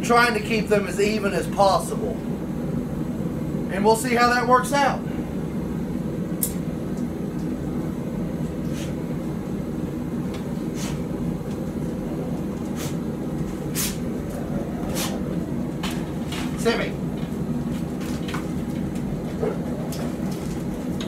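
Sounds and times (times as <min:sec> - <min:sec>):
forge rushing noise: 0:10.0 - 0:21.0.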